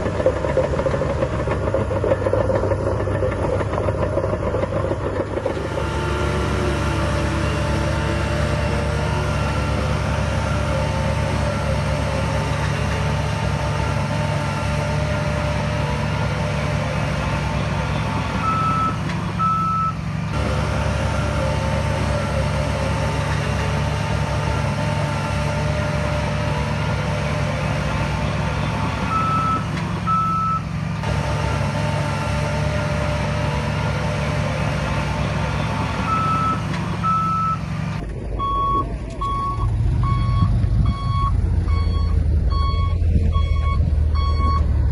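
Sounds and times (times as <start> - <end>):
heavy diesel machinery running: 0.0 - 44.9
reversing alarm beeps: 18.4 - 20.0, 29.1 - 30.6, 38.4 - 44.7.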